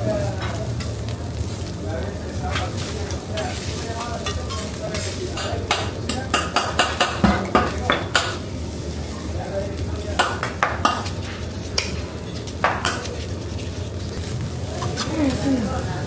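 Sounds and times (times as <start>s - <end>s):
food sizzling on hot plate: 0.0s - 16.0s
metal spatulas clacking on griddle: 2.5s - 8.4s, 10.0s - 13.3s.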